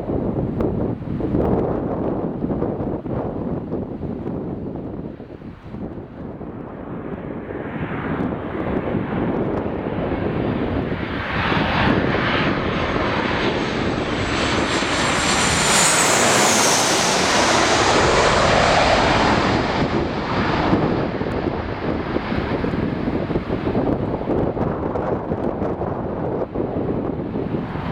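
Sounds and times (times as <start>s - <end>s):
airplane engine noise: 0.0s - 27.9s
jet engine high whine: 3.2s - 27.9s.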